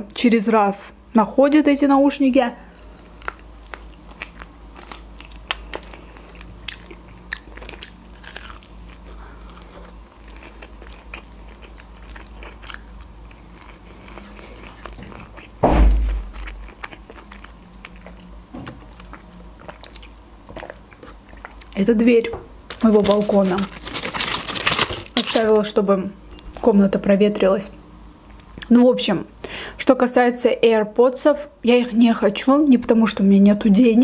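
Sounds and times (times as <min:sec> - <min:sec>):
chewing crispy fried chicken: 0:02.6 - 0:15.6, 0:16.2 - 0:21.8, 0:22.6 - 0:25.7
balcony door thud: 0:15.6 - 0:16.4.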